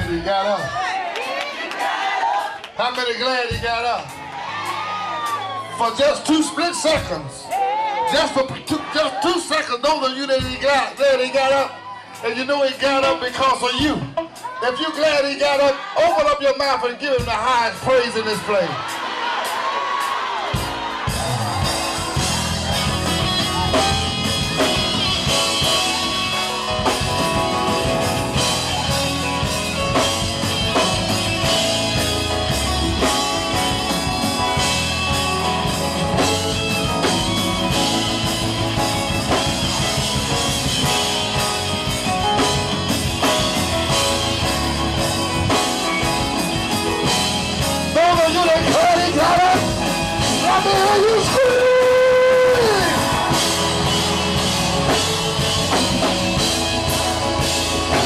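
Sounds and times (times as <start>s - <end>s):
gospel band playing: 0.0s - 58.0s
drum kit beat: 10.3s - 11.0s, 17.2s - 58.0s
electric guitar: 20.9s - 58.0s.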